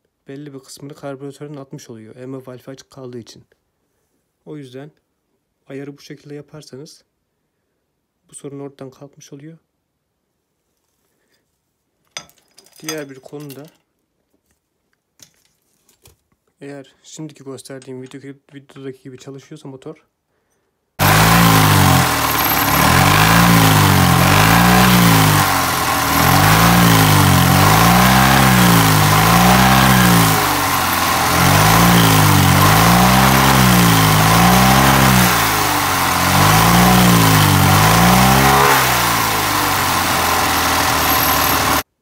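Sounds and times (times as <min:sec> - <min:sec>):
car engine revving: 0:21.0 - 0:41.8.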